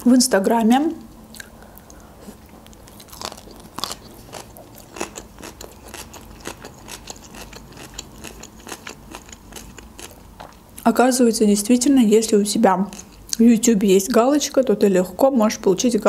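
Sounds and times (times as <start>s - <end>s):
person chewing food: 1.3s - 10.6s.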